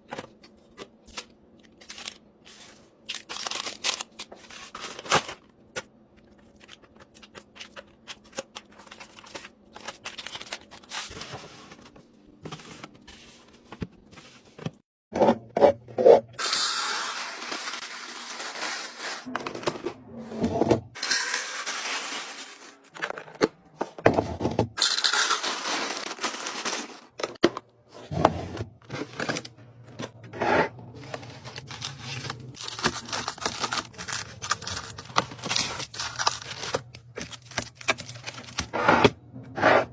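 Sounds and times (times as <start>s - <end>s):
plastic wrapping scraping and tearing: 3.0s - 5.3s, 16.4s - 19.7s, 21.0s - 23.1s, 24.8s - 27.2s, 30.9s - 38.8s.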